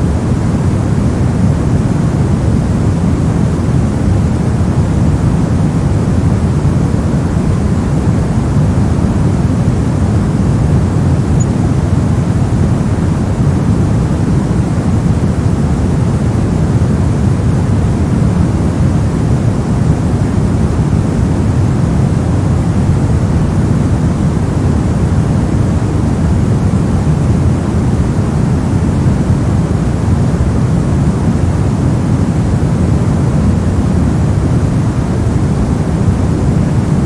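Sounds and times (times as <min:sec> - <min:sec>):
low white noise: 0:00.0 - 0:37.0.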